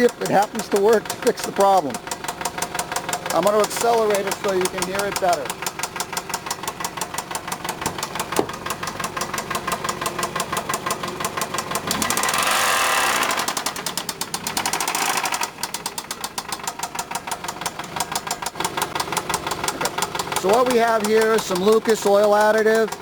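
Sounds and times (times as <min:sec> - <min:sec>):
car engine knocking: 0:00.0 - 0:23.0.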